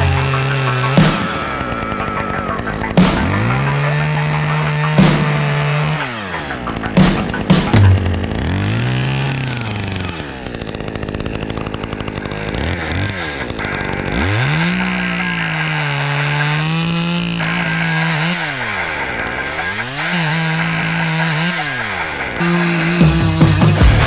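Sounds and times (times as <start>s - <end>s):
chainsaw revving: 0.0s - 24.0s.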